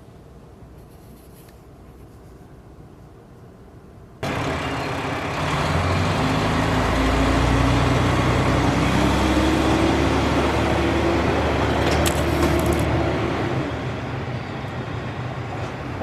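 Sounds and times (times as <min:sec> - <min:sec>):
train engine humming: 0:04.2 - 0:16.0.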